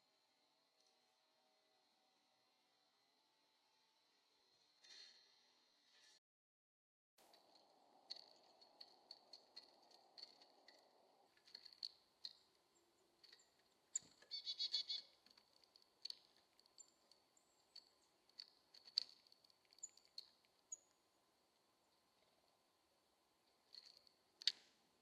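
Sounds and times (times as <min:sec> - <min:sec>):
small birds chipping: 0:07.3 - 0:22.5.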